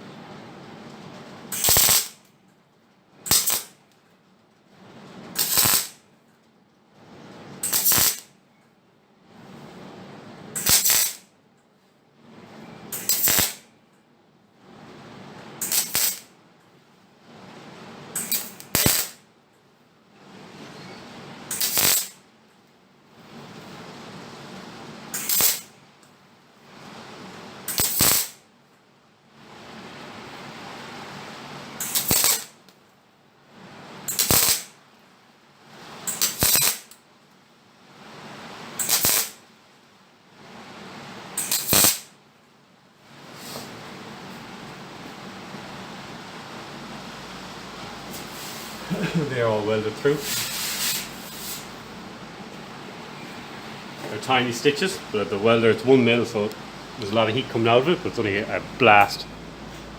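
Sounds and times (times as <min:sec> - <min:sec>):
welder arc crackle: 0:01.5 - 0:02.3, 0:03.3 - 0:03.9, 0:05.3 - 0:06.1, 0:07.6 - 0:08.3, 0:10.5 - 0:11.3, 0:12.9 - 0:13.7, 0:15.5 - 0:16.4, 0:18.1 - 0:19.3, 0:21.4 - 0:22.2, 0:24.6 - 0:26.1, 0:27.6 - 0:28.4, 0:30.2 - 0:32.8, 0:33.9 - 0:34.8, 0:35.7 - 0:37.0, 0:38.2 - 0:39.5, 0:41.0 - 0:42.2, 0:46.0 - 0:52.3
welder low hum: 0:05.4 - 0:06.0, 0:15.6 - 0:16.3, 0:21.5 - 0:22.2, 0:38.5 - 0:39.4, 0:45.5 - 0:59.9.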